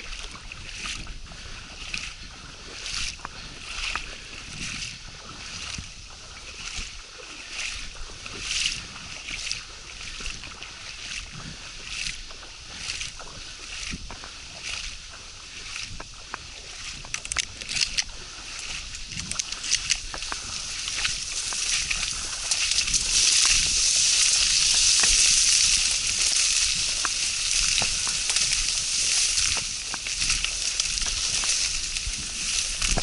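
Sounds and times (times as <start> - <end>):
water sloshing: 12.3 - 33.0
small clicks and ticks: 16.3 - 33.0.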